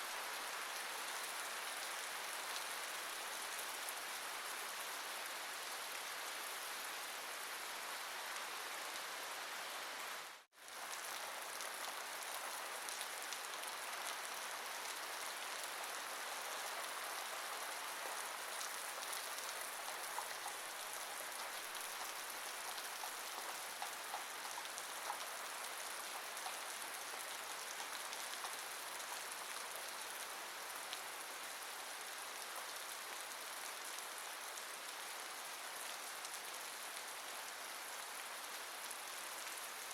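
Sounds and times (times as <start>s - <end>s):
steady rain hiss: 0.0s - 39.9s
faint drip ticks: 18.6s - 29.6s.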